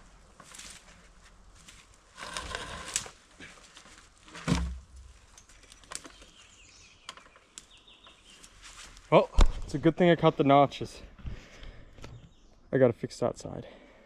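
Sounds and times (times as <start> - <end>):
rustling and scraping: 0.0 - 6.6, 8.1 - 9.1.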